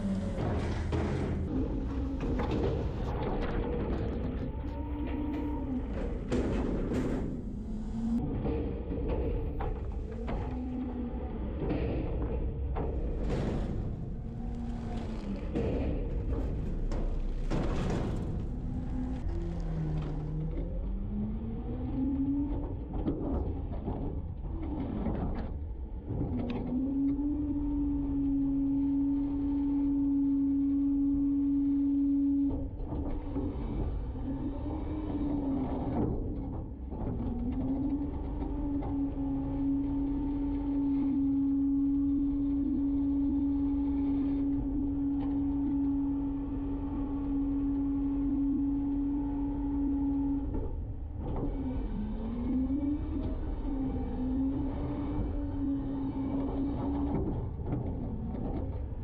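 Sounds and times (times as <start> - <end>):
engine rumbling: 0.0 - 24.4
garbage truck engine and hydraulics: 0.0 - 59.0.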